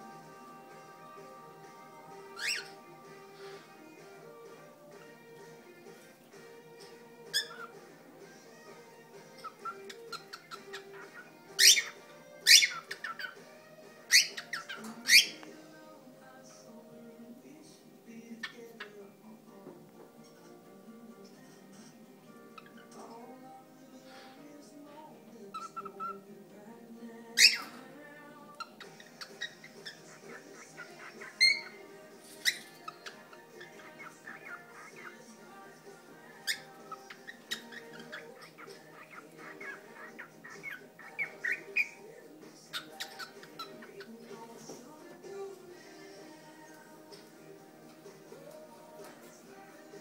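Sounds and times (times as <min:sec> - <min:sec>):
cockatiel whistling and chirping: 0:02.3 - 0:02.8, 0:07.3 - 0:07.8, 0:09.4 - 0:13.4, 0:14.1 - 0:15.4, 0:27.4 - 0:27.8, 0:28.6 - 0:35.3, 0:36.2 - 0:42.0, 0:42.7 - 0:44.1.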